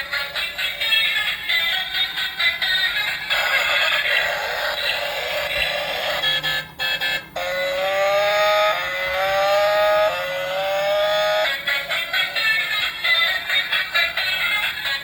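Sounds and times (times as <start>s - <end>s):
rising electronic alarm tone: 5.8s - 11.6s.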